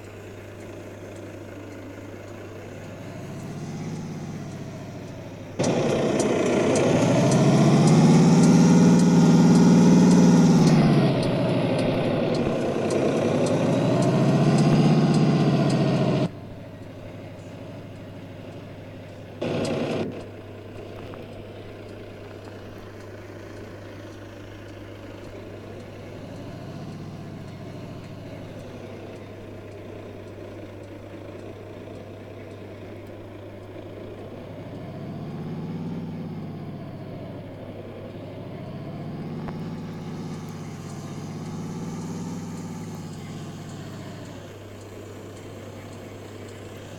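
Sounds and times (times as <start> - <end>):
heavy truck engines revving: 0.0 - 46.9.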